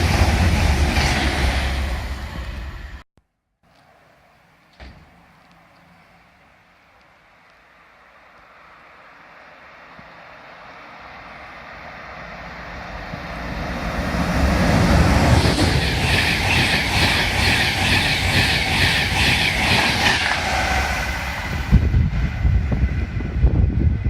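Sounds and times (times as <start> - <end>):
train passing at speed: 0.0 - 3.0, 3.8 - 24.0
clatter of wheels on track: 14.4 - 22.8.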